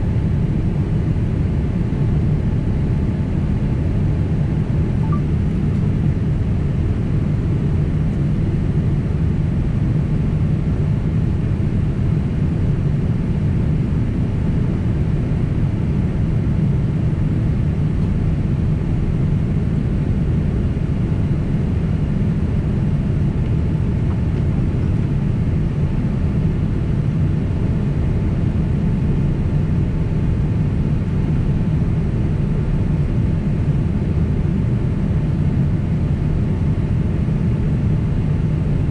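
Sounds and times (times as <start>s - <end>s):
jet engines rumbling in cabin: 0.0s - 38.9s.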